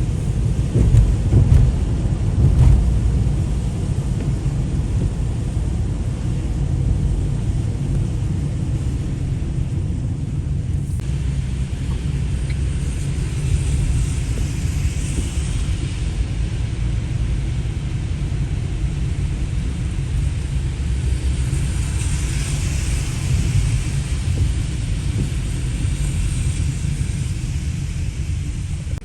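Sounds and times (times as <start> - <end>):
rain hissing: 0.0 - 9.2
wind buffeting microphone: 0.0 - 17.8, 21.0 - 29.0.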